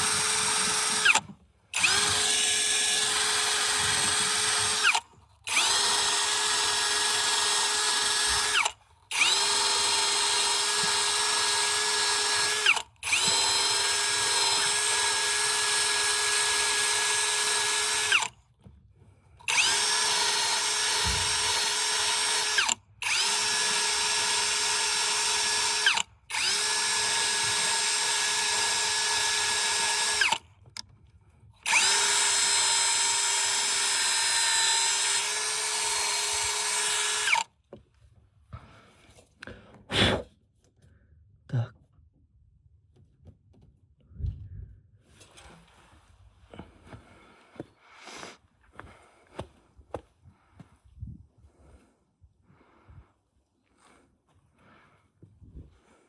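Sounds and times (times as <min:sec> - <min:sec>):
power drill whining: 0:00.0 - 0:18.7, 0:19.4 - 0:30.8, 0:31.6 - 0:37.6.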